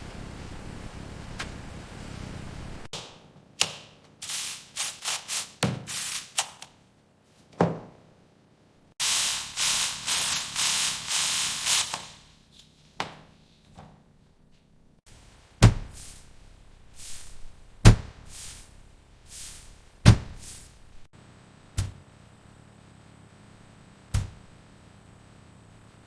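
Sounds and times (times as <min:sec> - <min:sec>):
short hissing bursts: 0:04.2 - 0:06.6, 0:09.0 - 0:12.4, 0:15.9 - 0:17.6, 0:18.2 - 0:21.0.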